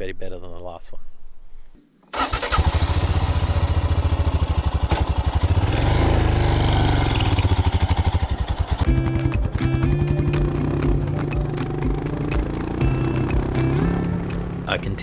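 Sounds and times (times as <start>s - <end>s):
motorcycle engine pulsing: 2.2s - 15.0s
music: 8.8s - 15.0s.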